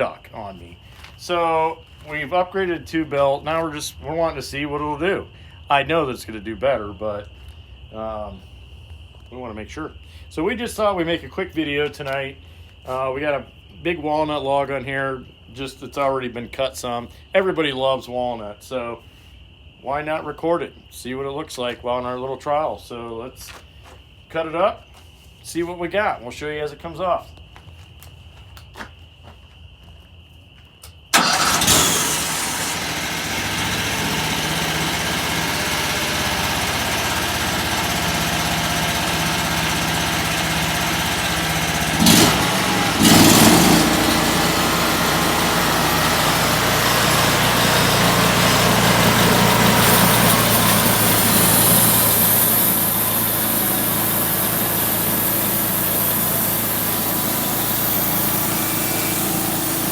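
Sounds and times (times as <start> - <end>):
small sawmill engine running: 31.1 - 59.9.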